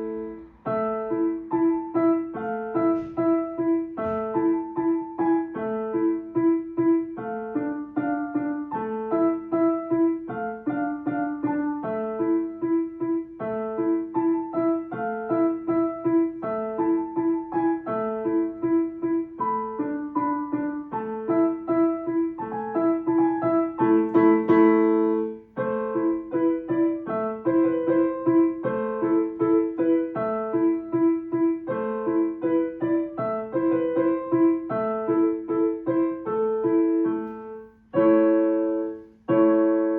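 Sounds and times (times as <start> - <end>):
solo piano piece: 0.0 - 39.9.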